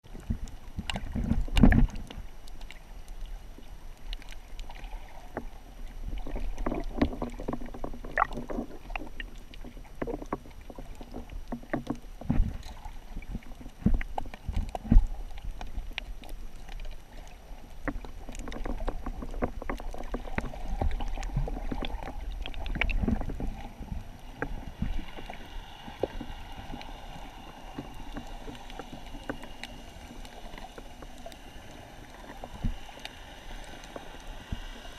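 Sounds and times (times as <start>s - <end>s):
water sloshing and splashing: 0.0s - 34.9s.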